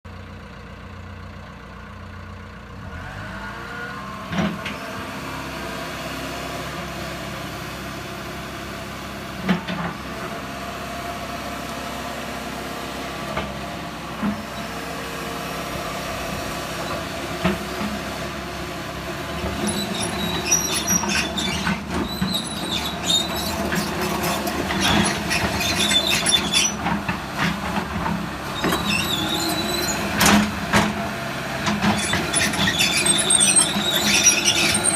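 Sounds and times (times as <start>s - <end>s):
excavator diesel engine running: 0.1s - 34.9s
machine squealing and rattling: 19.3s - 31.0s, 31.7s - 34.9s.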